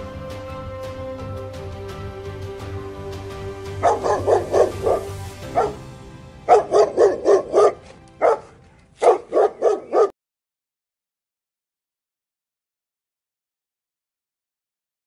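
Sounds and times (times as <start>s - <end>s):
background music: 0.0s - 10.1s
dog barking: 3.8s - 5.8s, 6.5s - 10.2s.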